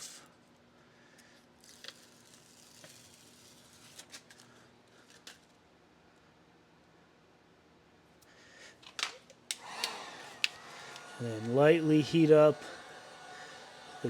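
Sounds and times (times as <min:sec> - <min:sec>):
backing paper peeling with crackles: 0:01.6 - 0:05.4.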